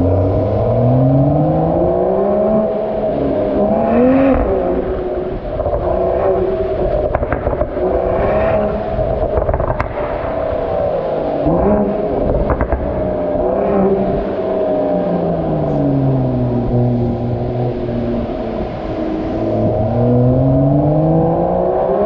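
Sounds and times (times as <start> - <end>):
car engine and exhaust running: 0.0 - 22.0
sharp clicks or pops: 9.3 - 10.2, 12.4 - 13.0.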